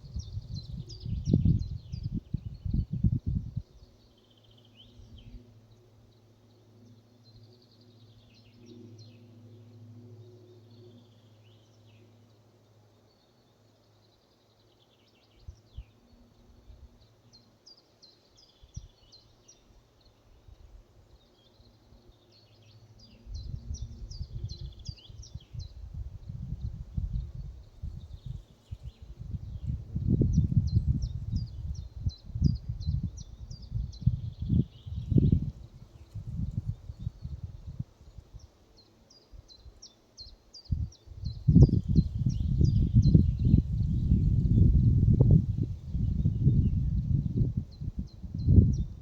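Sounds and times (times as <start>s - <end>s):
songbirds chirping: 0.0s - 49.0s.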